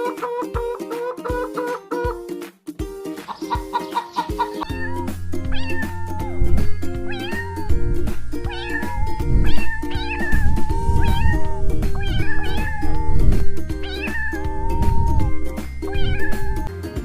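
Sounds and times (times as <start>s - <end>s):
background music with beat: 0.0s - 17.0s
cat meowing: 4.6s - 7.8s, 8.4s - 16.7s.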